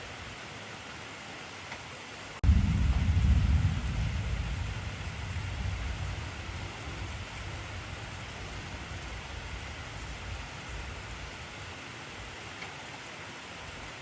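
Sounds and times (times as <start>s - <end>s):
heavy rain hissing: 2.2s - 14.0s
thunder rumbling: 2.4s - 12.4s.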